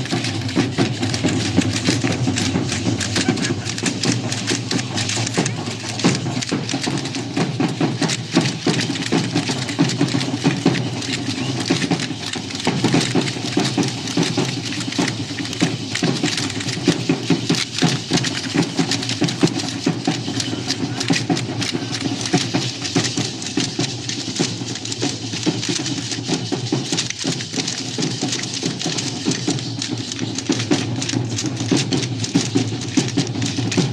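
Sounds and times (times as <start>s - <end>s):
dancers clattering and clacking: 0.0s - 33.9s
drum beating: 0.0s - 33.9s.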